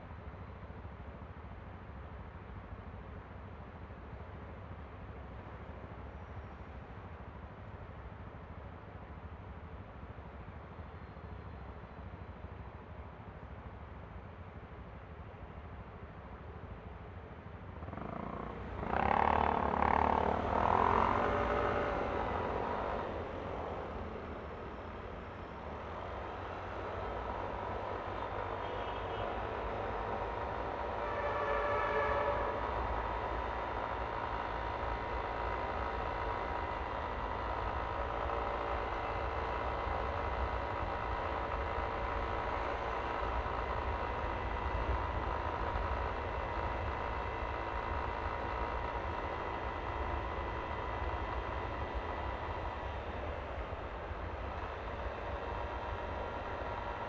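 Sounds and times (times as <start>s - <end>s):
scooter engine and wind rumble: 17.8s - 31.2s, 32.6s - 57.0s.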